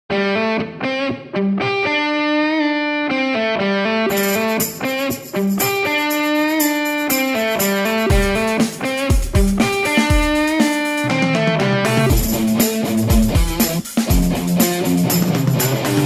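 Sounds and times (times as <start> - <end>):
electric guitar melody: 0.1 - 16.0.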